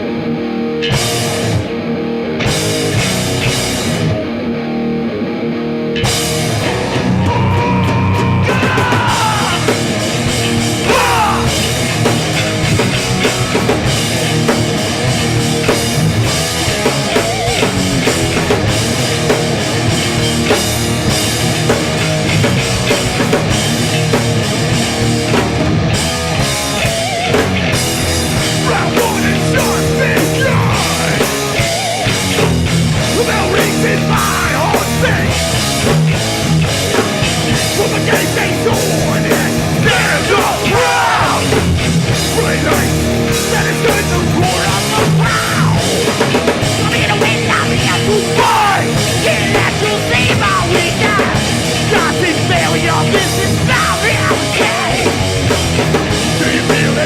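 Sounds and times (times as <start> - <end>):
bass guitar: 0.0 - 57.0
distorted guitars: 0.0 - 57.0
pounding drum kit: 0.8 - 1.6, 2.4 - 4.1, 6.0 - 57.0
shouted vocals: 6.6 - 11.9, 28.4 - 31.9, 33.0 - 35.5, 37.4 - 55.3, 56.1 - 57.0.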